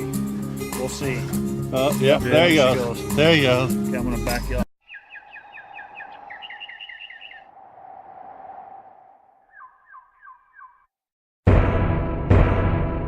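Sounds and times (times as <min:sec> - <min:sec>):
bird trilling call: 0:04.8 - 0:07.6, 0:09.4 - 0:10.9.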